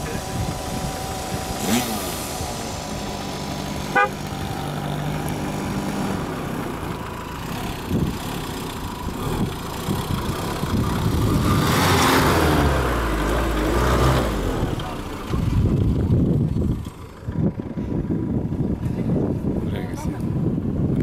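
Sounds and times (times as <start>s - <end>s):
car engine running and revving: 0.0s - 21.0s.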